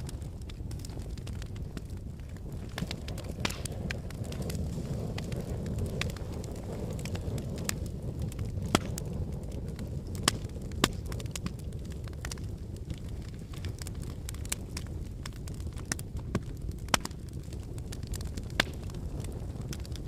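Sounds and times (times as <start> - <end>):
logs crackling and popping: 0.0 - 20.0
low rumble of flames: 0.0 - 20.0.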